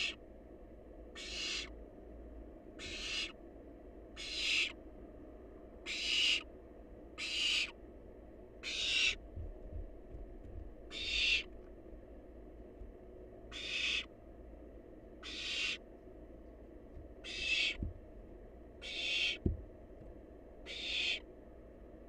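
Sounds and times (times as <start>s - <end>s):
owl chick hissing call: 1.2s - 1.7s, 2.8s - 3.4s, 4.2s - 4.8s, 5.9s - 6.5s, 7.2s - 7.8s, 8.6s - 9.2s, 10.9s - 11.5s, 13.5s - 14.1s, 15.2s - 15.8s, 17.2s - 17.8s, 18.8s - 19.4s, 20.7s - 21.2s
soft low knocks: 9.2s - 10.9s, 16.8s - 18.4s, 19.4s - 20.2s.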